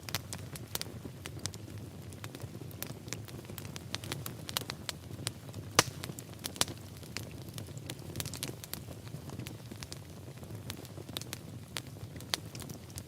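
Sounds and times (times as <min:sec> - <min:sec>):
fire popping and snapping: 0:00.0 - 0:13.0
fire rumbling: 0:00.0 - 0:13.0.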